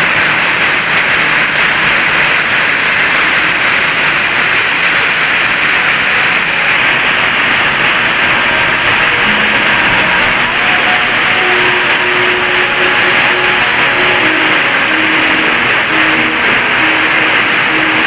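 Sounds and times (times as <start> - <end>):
rushing water: 0.0 - 18.0.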